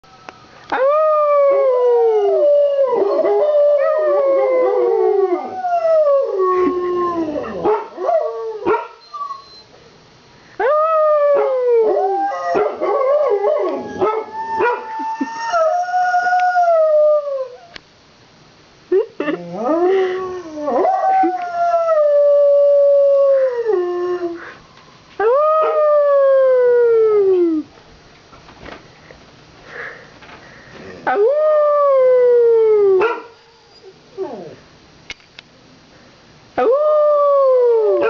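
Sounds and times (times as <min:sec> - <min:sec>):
dogs howling: 0:10.7 - 0:17.8.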